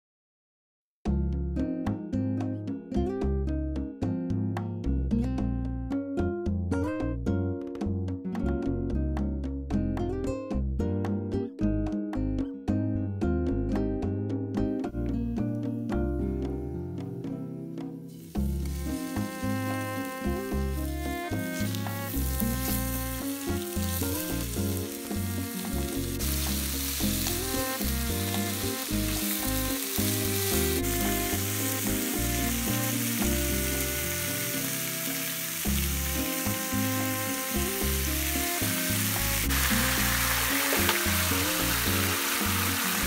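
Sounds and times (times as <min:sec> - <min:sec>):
background music: 0:01.1 - 0:43.0
food sizzling in a pan: 0:18.1 - 0:43.0.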